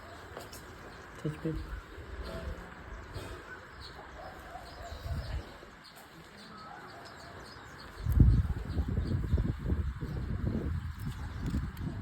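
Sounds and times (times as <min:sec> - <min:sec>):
birds chirping faintly: 0:00.0 - 0:11.9.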